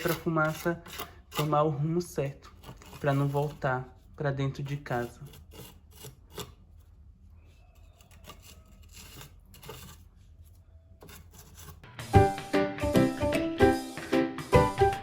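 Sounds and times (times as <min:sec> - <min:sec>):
trowel scraping mortar: 0:00.0 - 0:06.9, 0:07.7 - 0:11.9
background music: 0:11.8 - 0:15.0.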